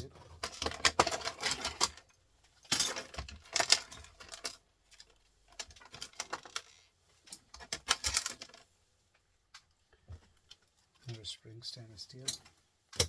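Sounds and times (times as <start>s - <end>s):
small metal parts clinking: 0.4s - 8.6s.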